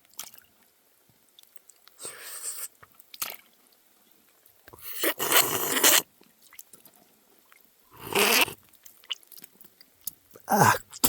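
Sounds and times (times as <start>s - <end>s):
person slurping water: 4.8s - 6.0s, 8.0s - 8.6s, 10.4s - 11.0s.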